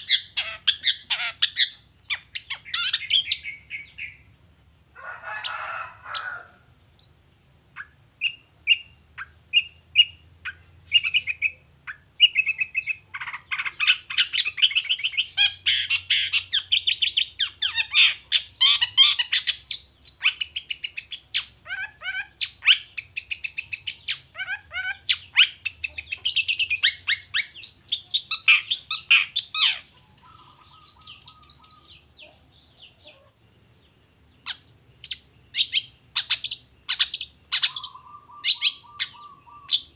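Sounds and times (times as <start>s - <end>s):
shrike singing: 10.9s - 33.2s, 34.3s - 39.9s.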